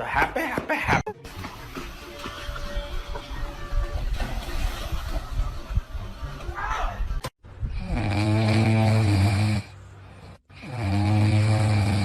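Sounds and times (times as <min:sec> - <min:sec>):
dog snoring: 0:10.5 - 0:12.0.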